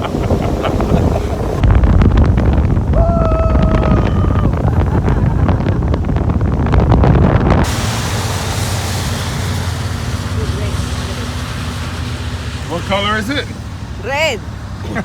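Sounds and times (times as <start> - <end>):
wind buffeting microphone: 0.0 - 14.8
vehicle rumble: 0.0 - 15.0
hiss: 7.6 - 12.6.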